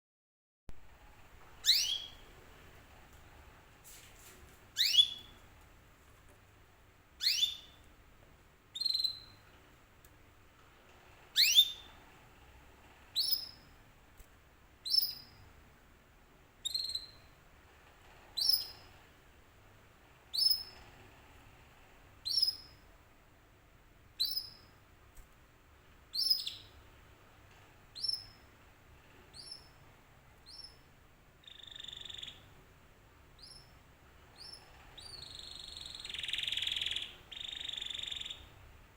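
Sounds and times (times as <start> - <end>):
canary rising chirp calls: 1.6 - 2.2, 4.8 - 5.3, 7.2 - 7.8, 11.4 - 11.9, 31.4 - 32.5, 34.4 - 38.5.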